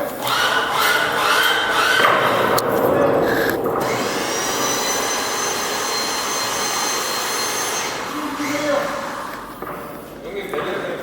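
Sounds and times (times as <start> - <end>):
high whine: 0.1 - 9.7
electric hoist motor hissing: 3.2 - 10.2.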